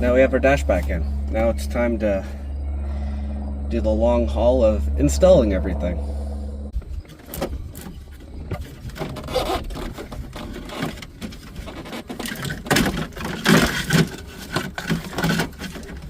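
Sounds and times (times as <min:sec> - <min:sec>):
scraping and rubbing of plastic parts: 0:06.8 - 0:16.0.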